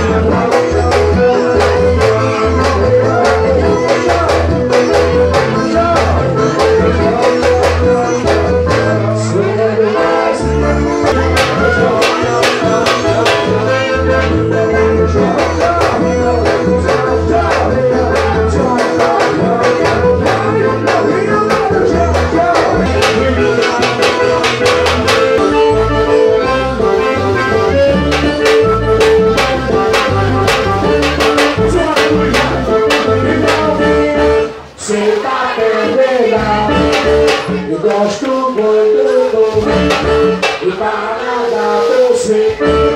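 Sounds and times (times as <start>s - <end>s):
band music with steady drumbeat: 0.0s - 42.9s.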